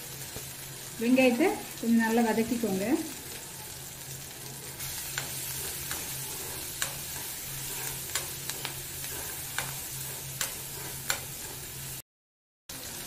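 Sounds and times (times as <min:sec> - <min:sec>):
onions sizzling in hot oil: 0:00.0 - 0:12.0, 0:12.7 - 0:13.0
metal spoon scraping a pan: 0:04.3 - 0:12.0.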